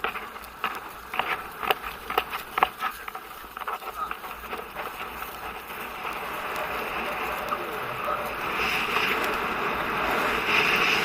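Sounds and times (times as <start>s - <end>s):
horse hooves cantering: 0.0s - 11.0s
wind on microphone: 3.4s - 11.0s.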